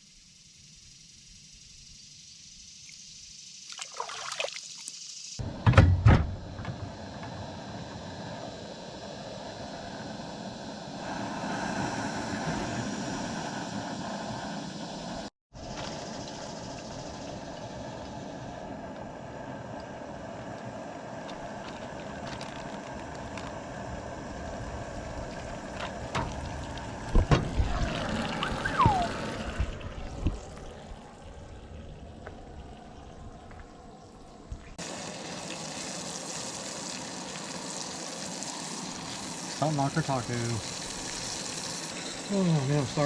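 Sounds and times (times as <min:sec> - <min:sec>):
fish sizzling in oil: 0:34.8 - 0:43.0.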